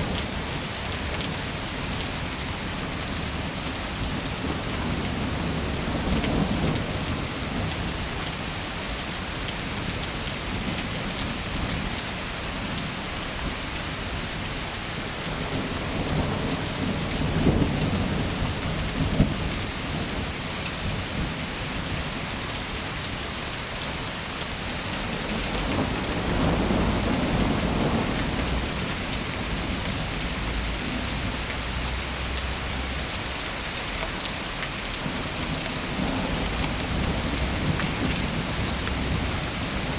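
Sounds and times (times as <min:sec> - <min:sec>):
rain hissing: 0:00.0 - 0:39.9
low thunder rumbles: 0:25.1 - 0:31.4, 0:35.0 - 0:39.9.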